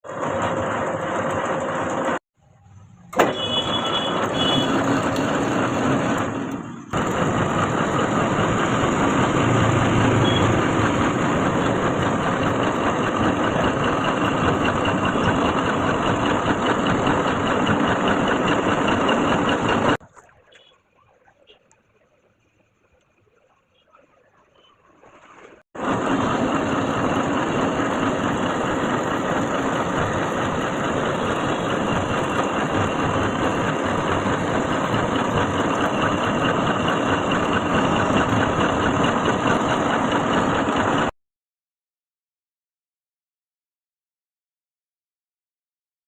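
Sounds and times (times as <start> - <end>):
lathe cutting a thread: 0.1 - 2.2, 3.2 - 20.0, 25.8 - 41.1.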